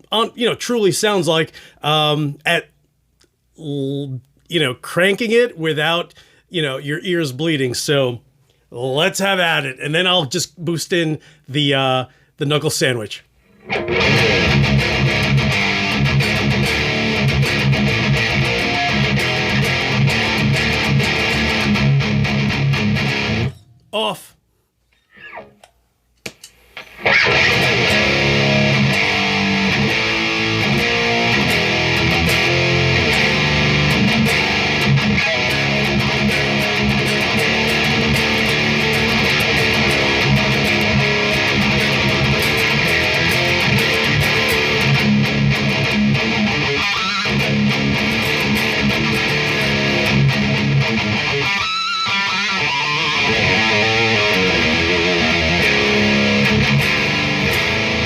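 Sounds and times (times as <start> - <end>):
distorted electric guitar riffs: 13.5 - 24.3, 26.8 - 58.0.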